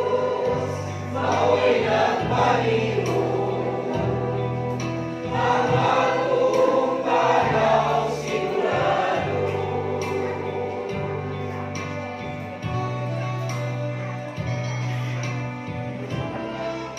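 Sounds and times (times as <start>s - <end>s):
choir singing gospel: 0.0s - 12.8s
bass accompaniment with beat: 0.0s - 16.9s.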